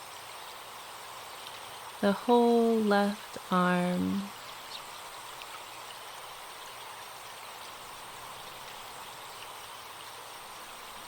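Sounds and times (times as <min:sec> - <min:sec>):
stream flowing: 0:00.0 - 0:11.0
birds chirping: 0:03.9 - 0:11.0.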